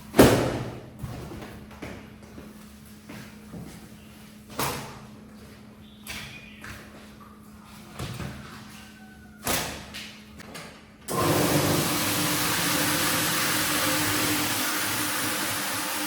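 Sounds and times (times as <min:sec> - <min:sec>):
cleaning machine hissing and humming: 0:11.1 - 0:16.0.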